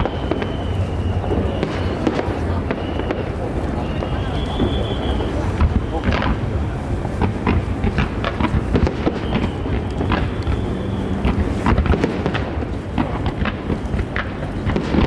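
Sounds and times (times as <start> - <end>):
firework bursts and crackles: 0.0 - 15.0.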